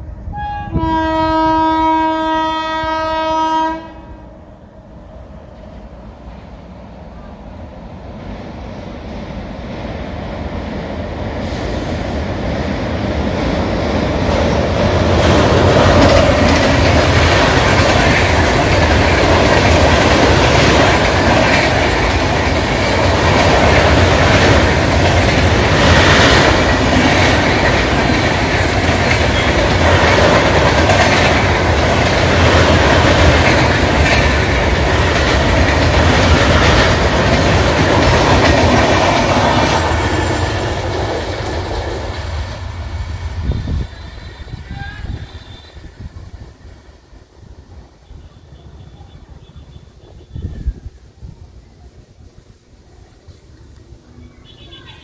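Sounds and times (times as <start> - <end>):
train wheels clickety-clack: 11.2 - 45.9.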